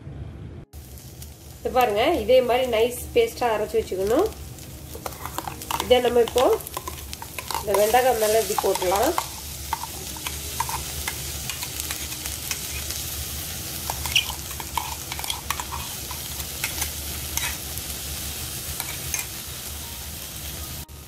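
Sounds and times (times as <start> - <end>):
okra sizzling in oil: 0.7 - 21.0
spoon scraping a jar: 5.0 - 12.9, 13.9 - 17.6
crackles and pops: 13.9 - 17.6.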